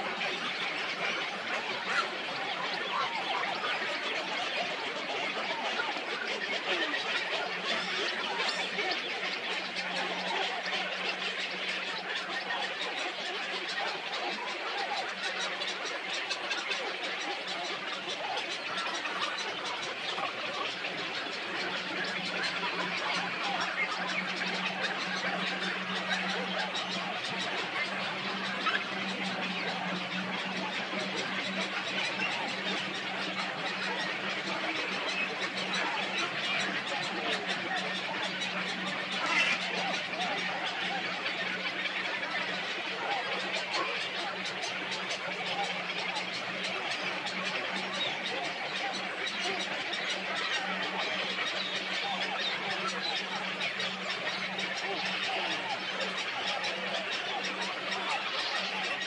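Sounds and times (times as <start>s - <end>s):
flock of birds chattering: 0.0s - 59.0s
constant low hum: 6.6s - 49.3s.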